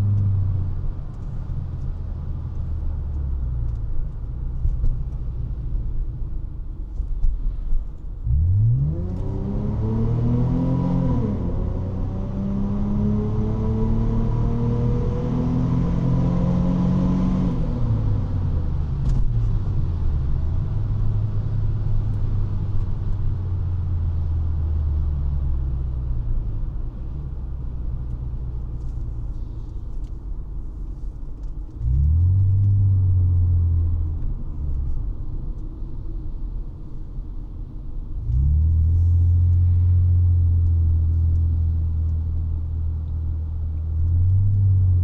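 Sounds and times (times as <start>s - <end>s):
car engine revving: 8.3s - 18.2s.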